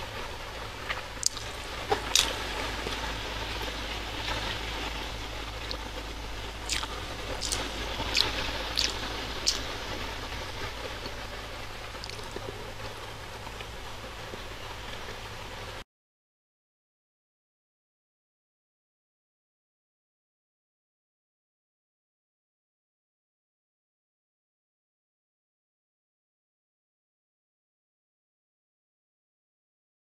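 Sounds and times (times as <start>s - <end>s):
steady hiss: 0.0s - 15.8s
wet mouth clicks and smacks: 1.2s - 3.0s, 6.7s - 9.8s, 12.0s - 12.5s
person chewing soft food: 1.2s - 11.2s, 11.9s - 12.7s.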